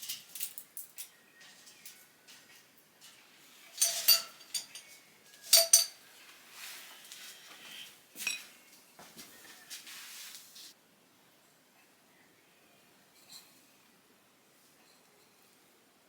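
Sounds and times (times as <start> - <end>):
hard objects knocking and clinking: 3.8 - 6.0
soft scraping noise: 6.2 - 8.6, 9.2 - 10.8.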